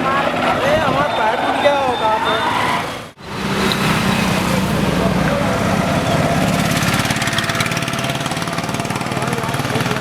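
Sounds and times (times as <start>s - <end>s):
small motorcycle engine running: 3.2s - 10.0s.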